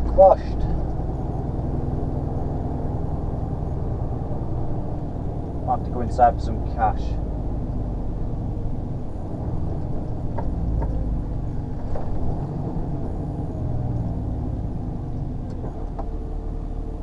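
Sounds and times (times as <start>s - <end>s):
lorry engine idling: 0.0s - 17.0s.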